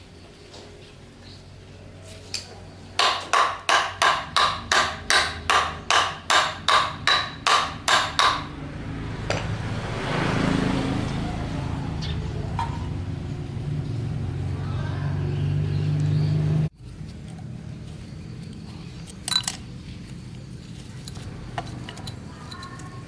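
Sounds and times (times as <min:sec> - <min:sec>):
hammer blows: 0:03.0 - 0:08.6.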